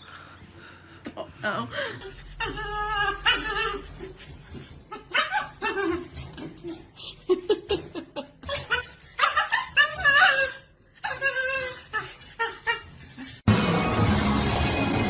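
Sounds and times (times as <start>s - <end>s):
music: 13.5s - 15.0s.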